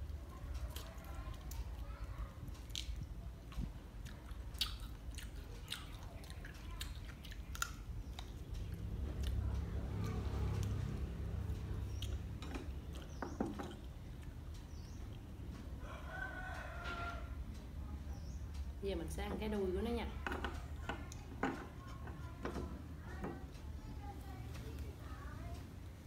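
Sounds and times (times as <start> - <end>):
person chewing and smacking lips: 0.0 - 9.7, 11.6 - 15.7
sharp mouth clicks: 4.0 - 9.4.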